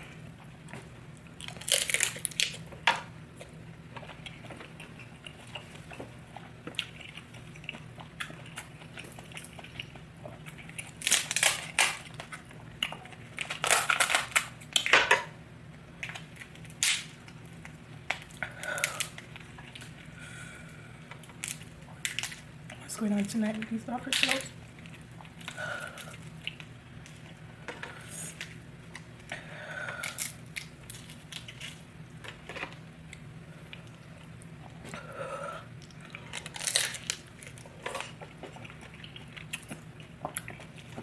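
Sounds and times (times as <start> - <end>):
shell crunching and cracking: 1.3 - 3.0, 6.6 - 15.3, 16.0 - 20.0, 21.1 - 22.5, 30.0 - 33.9, 35.8 - 41.0
chewing: 3.4 - 13.7, 35.7 - 41.0.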